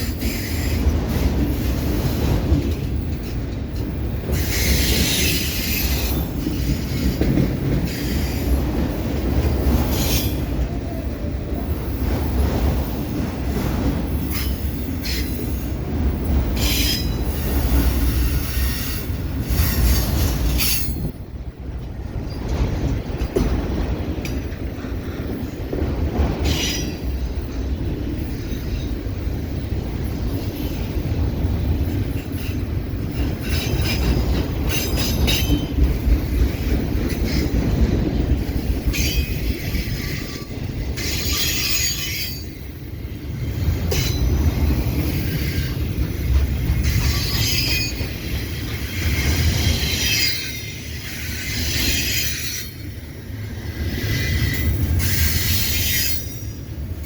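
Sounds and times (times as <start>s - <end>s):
train wheels squealing: 0.0s - 0.9s, 4.2s - 8.8s, 9.6s - 12.2s, 14.1s - 21.2s, 30.0s - 36.4s, 38.6s - 56.8s
freight train cars rumbling: 0.0s - 57.0s.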